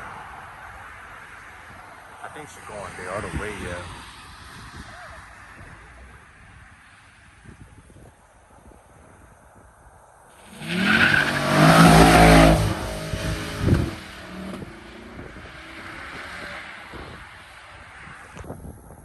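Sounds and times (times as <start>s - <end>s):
car engine revving: 10.4s - 18.4s.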